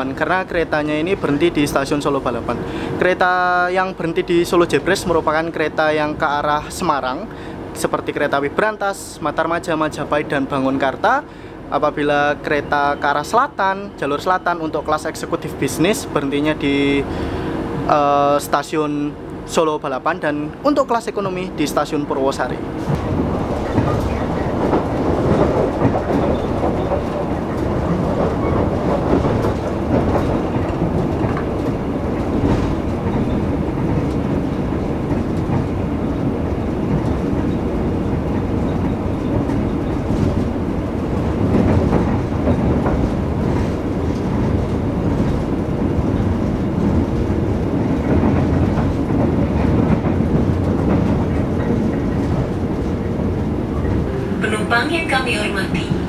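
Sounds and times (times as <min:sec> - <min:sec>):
train wheels rumbling on rails: 0:00.0 - 0:56.0
train knocks: 0:12.1 - 0:56.0.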